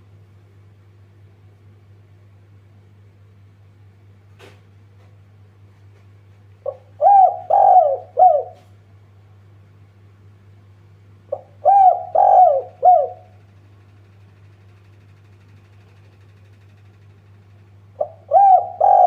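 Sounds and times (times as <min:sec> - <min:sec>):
dove cooing: 0:06.6 - 0:08.7, 0:11.3 - 0:13.4, 0:18.0 - 0:19.0.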